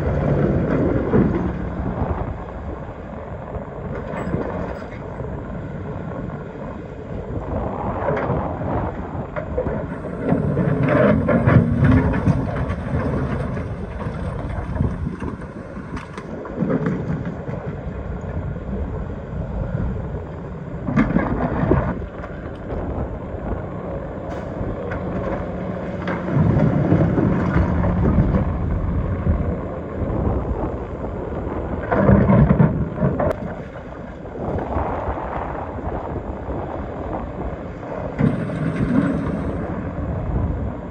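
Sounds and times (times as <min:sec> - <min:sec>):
excavator diesel engine under load: 0:00.0 - 0:02.5, 0:09.7 - 0:17.6, 0:23.6 - 0:33.4, 0:37.9 - 0:40.8.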